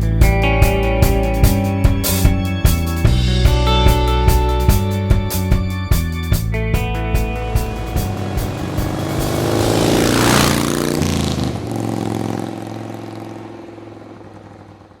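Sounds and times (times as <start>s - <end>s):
motorcycle engine revving: 6.7s - 15.0s.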